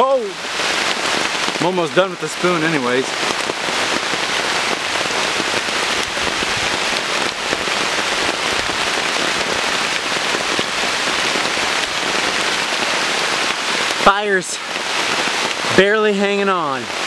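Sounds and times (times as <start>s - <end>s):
heavy rain on a tarp: 0.0s - 17.0s.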